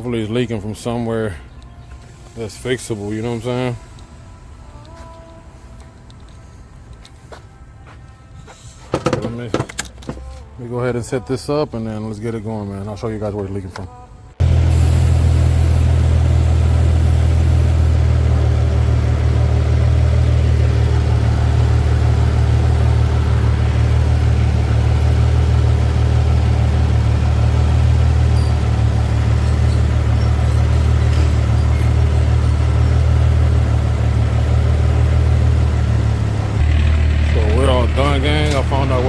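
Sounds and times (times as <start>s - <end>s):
car engine idling: 14.4s - 39.0s.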